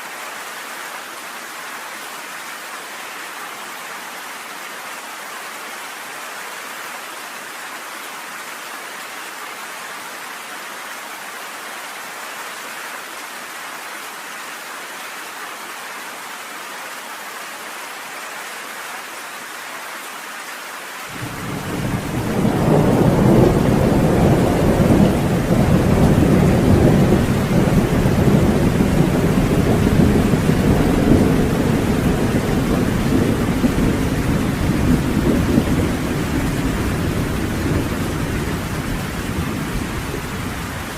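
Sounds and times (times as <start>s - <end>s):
rain hissing: 21.1s - 40.9s
deep thunder rumble: 21.2s - 40.9s.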